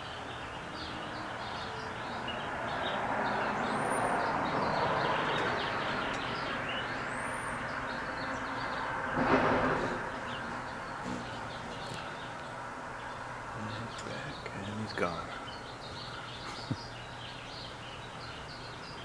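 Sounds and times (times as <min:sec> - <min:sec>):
small birds chirping: 0:00.0 - 0:19.0
passing road vehicle: 0:00.7 - 0:14.5.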